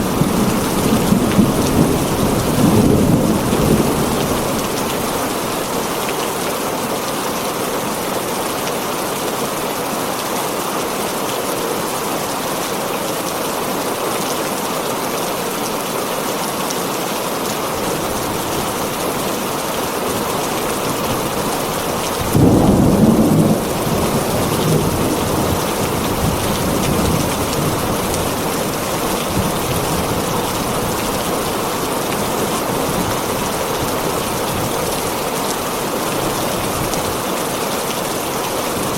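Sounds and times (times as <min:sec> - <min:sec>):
thunder clap: 0:00.0 - 0:05.4, 0:21.2 - 0:31.2
low thunder rumbling: 0:00.0 - 0:05.7, 0:20.7 - 0:34.8
heavy rain on a tin roof: 0:00.0 - 0:38.9.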